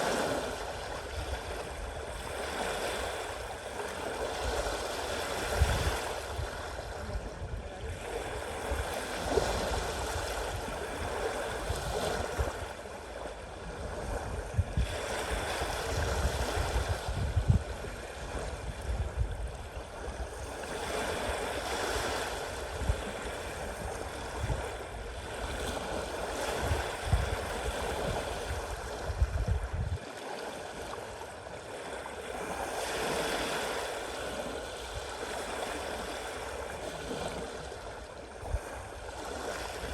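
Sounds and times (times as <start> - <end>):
sea waves breaking: 0.0 - 39.9
wind buffeting microphone: 4.2 - 12.8, 13.5 - 30.1.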